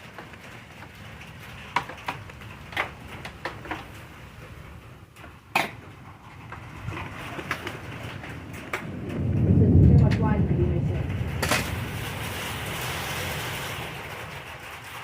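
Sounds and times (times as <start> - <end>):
clicks and knocks of handling: 5.2 - 8.9.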